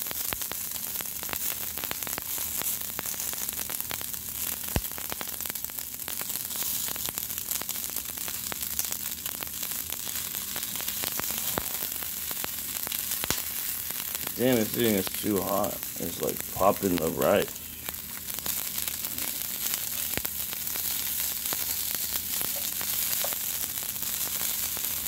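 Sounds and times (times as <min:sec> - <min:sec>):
food sizzling in a skillet: 0:00.0 - 0:25.0
rice popping and crackling: 0:00.0 - 0:25.0.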